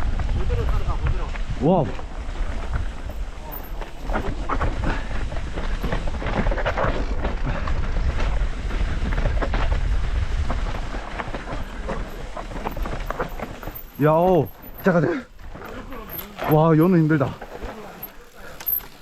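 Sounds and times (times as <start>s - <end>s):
wind on microphone: 0.0s - 13.8s
bike clattering over stones: 0.0s - 19.0s.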